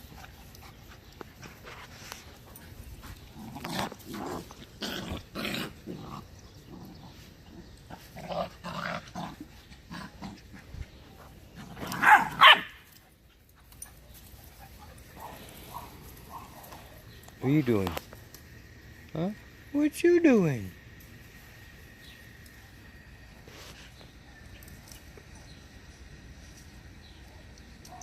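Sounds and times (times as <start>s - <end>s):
puppies growling and yapping: 2.2s - 12.8s.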